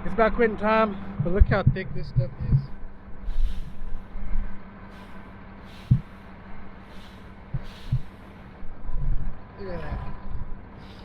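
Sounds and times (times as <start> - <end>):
tractor engine running: 0.0 - 11.0
sharp knocks: 1.2 - 2.8
short soft hisses: 3.3 - 4.0.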